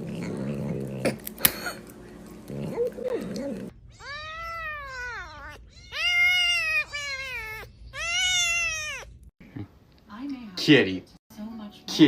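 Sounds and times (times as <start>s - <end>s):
cat meowing: 3.8s - 9.2s.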